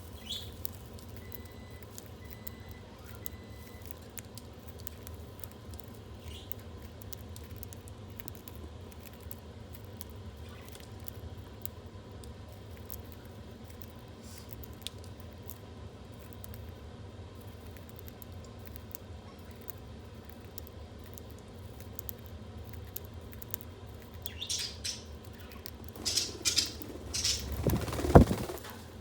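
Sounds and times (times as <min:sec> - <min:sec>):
low steady hum: 0:00.0 - 0:29.0
birds pecking clicks and taps: 0:00.2 - 0:15.6, 0:17.4 - 0:28.7
budgie chirps: 0:24.3 - 0:28.6.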